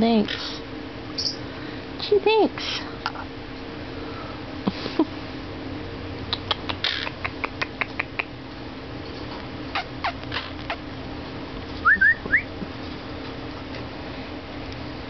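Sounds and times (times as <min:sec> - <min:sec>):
pet bird calling: 0:01.2 - 0:01.4, 0:06.4 - 0:08.3, 0:09.7 - 0:10.8.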